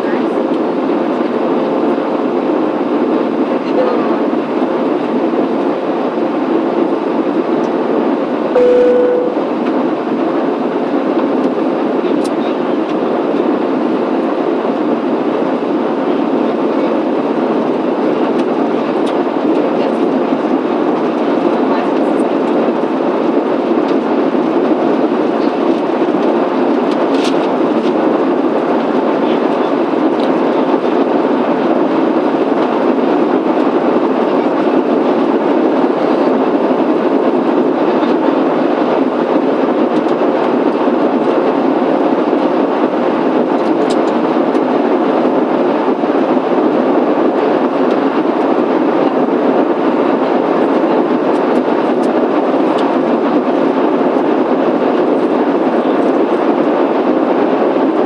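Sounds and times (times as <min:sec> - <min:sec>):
faint steady hum: 0:08.6 - 0:09.5
airliner cabin rush: 0:11.6 - 0:56.2.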